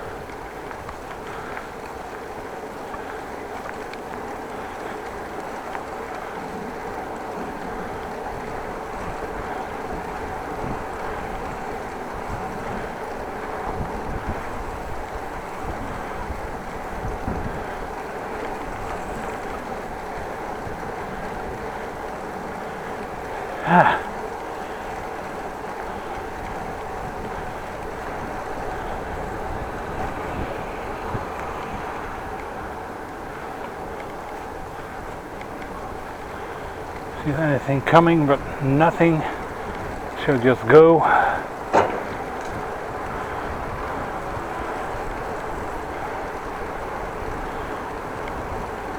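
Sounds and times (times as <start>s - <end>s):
bicycle rolling noise: 0.0s - 48.9s
wind buffeting microphone: 0.0s - 48.9s
wind on microphone: 7.9s - 21.8s, 26.1s - 33.6s
small knocks: 41.6s - 43.2s.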